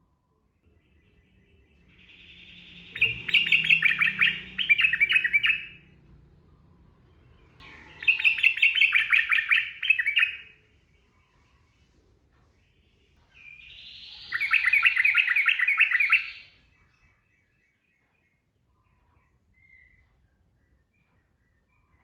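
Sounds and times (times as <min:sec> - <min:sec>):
bulbul singing: 0:00.7 - 0:06.0, 0:07.6 - 0:10.6, 0:13.4 - 0:17.2.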